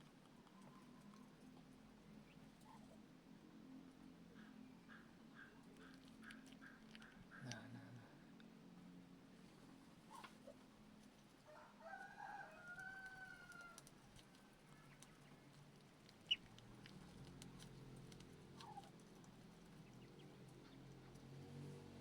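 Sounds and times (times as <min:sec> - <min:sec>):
duckling peeping: 0:16.2 - 0:16.5, 0:18.6 - 0:18.9, 0:19.8 - 0:20.8.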